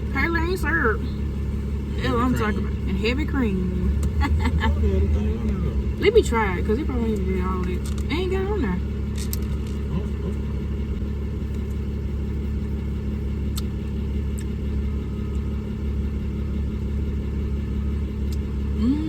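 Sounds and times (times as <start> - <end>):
engine hum inside vehicle cab: 0.0 - 19.0.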